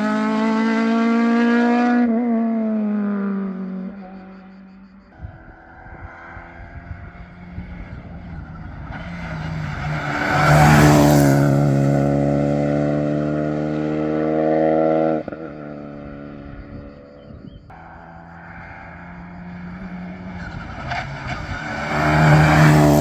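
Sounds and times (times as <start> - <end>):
rally car engine passing flat out: 5.8 - 15.2, 17.8 - 23.0.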